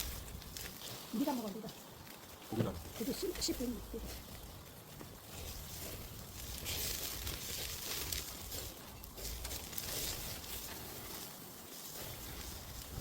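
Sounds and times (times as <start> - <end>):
meat sizzling on a grill: 0.0 - 13.0.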